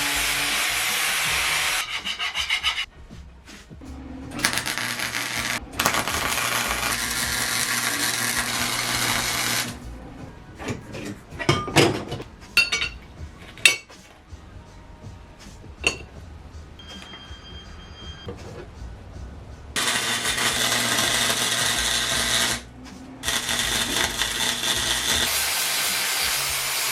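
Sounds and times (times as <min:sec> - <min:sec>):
power tool running: 0:00.0 - 0:01.8, 0:04.2 - 0:09.8, 0:19.8 - 0:26.9
metal tools clinking: 0:10.6 - 0:13.9.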